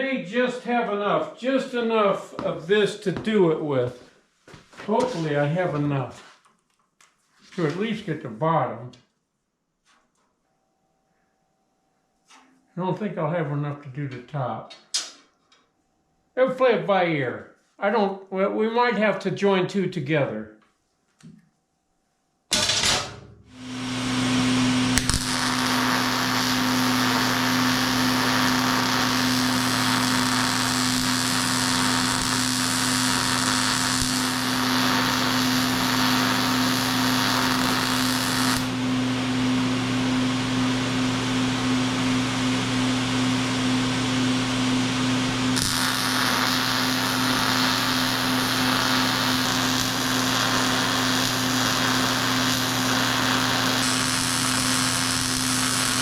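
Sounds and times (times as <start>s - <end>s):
power tool buzzing on metal: 23.6s - 39.0s, 45.5s - 56.0s.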